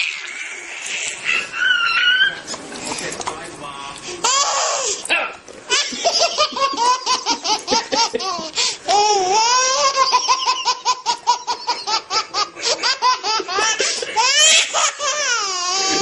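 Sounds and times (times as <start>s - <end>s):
baby squealing: 0.0s - 2.5s, 4.2s - 5.3s, 8.9s - 11.5s, 13.6s - 16.0s
baby giggling: 5.7s - 16.0s.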